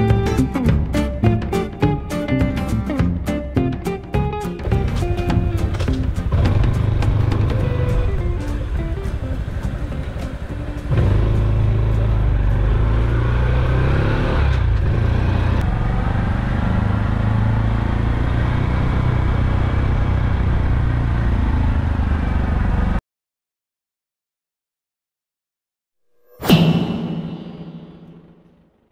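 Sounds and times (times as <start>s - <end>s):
motorcycle engine running: 4.6s - 23.0s.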